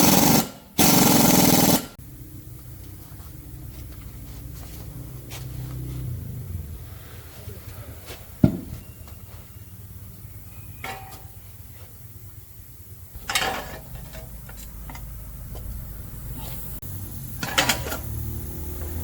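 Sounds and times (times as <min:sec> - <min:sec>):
metal tools clinking: 0:13.2 - 0:15.2, 0:17.3 - 0:18.3.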